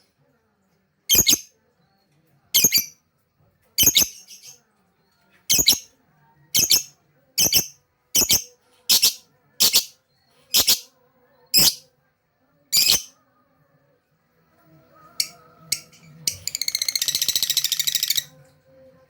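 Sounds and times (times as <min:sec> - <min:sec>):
lovebird screeching: 0:05.5 - 0:05.8, 0:06.6 - 0:09.9, 0:10.6 - 0:10.9.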